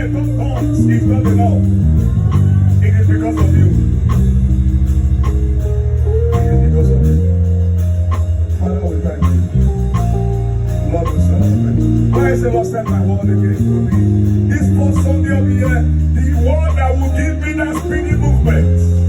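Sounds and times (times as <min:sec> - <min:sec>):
live church band worship music: 0:00.0 - 0:19.0.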